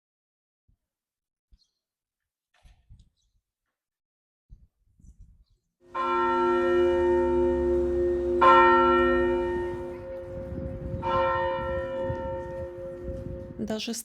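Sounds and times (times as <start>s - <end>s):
large bell ringing: 5.9s - 13.6s.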